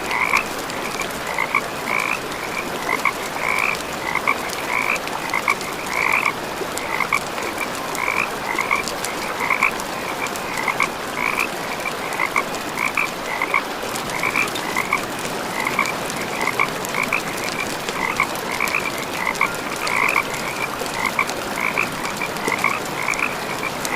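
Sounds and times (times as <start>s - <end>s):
frogs croaking: 0.0s - 23.9s.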